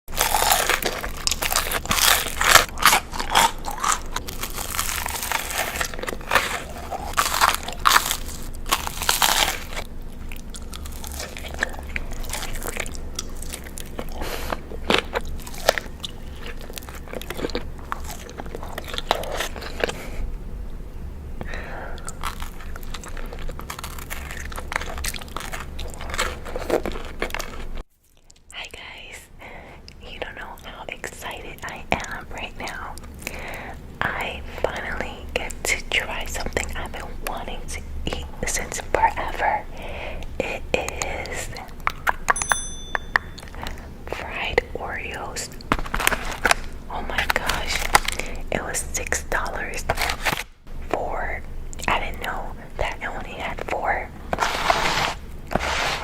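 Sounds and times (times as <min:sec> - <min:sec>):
crunchy chewing: 0:00.1 - 0:20.4, 0:21.4 - 0:28.6, 0:34.7 - 0:42.4, 0:45.2 - 0:48.5
steady low hum: 0:00.1 - 0:56.0.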